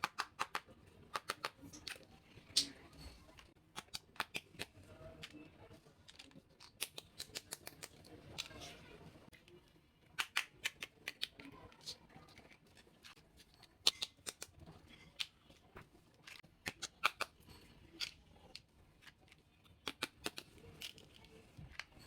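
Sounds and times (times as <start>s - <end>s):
plastic toy pieces clicking: 0.0s - 2.7s, 3.7s - 5.4s, 6.0s - 8.7s, 10.2s - 12.8s, 13.6s - 15.5s, 16.2s - 22.0s.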